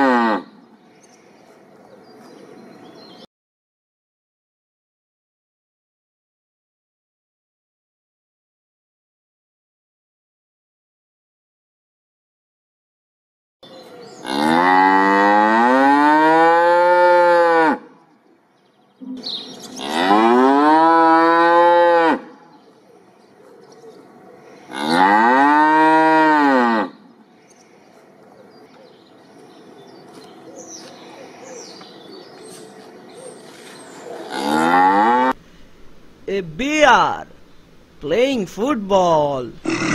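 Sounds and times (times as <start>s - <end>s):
cow mooing: 0.0s - 0.5s, 14.2s - 17.9s, 19.8s - 22.3s, 24.7s - 27.0s, 34.2s - 35.4s.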